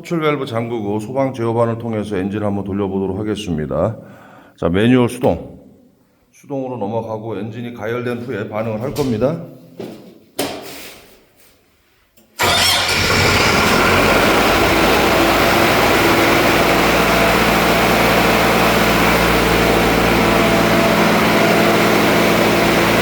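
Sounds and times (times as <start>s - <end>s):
pump engine starting and running: 12.4s - 23.0s.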